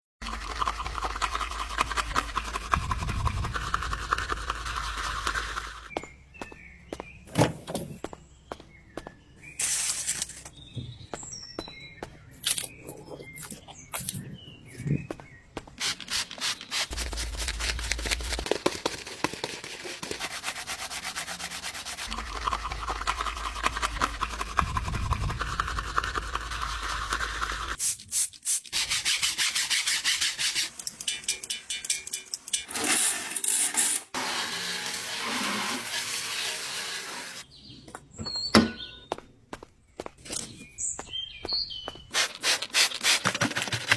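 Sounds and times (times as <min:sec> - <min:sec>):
scrubbing on a surface: 0:00.3 - 0:05.9, 0:15.8 - 0:30.7.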